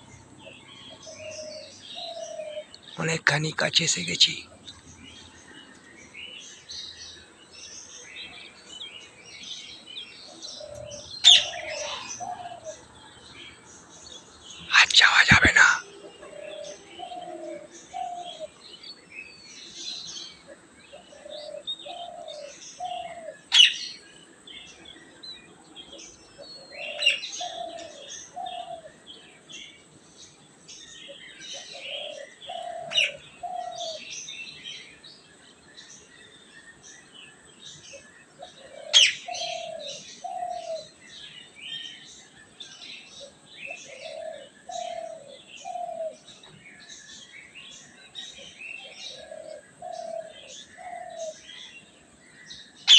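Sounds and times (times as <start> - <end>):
dove cooing: 0.0 - 2.7, 10.3 - 13.0, 15.2 - 18.6, 20.4 - 23.8, 26.4 - 29.0, 31.4 - 34.1, 38.4 - 41.0, 43.2 - 46.4, 48.8 - 51.7
small birds chirping: 0.0 - 52.9
sharp loud bird calls: 9.0 - 12.8, 37.8 - 42.6.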